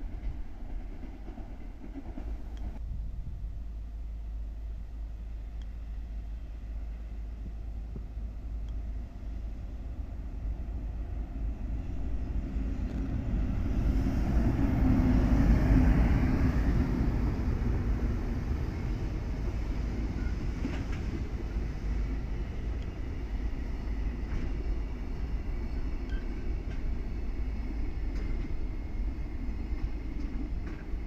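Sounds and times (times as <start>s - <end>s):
electric locomotive passing: 0.0s - 31.0s
freight wagons rumbling over rails: 6.1s - 31.0s.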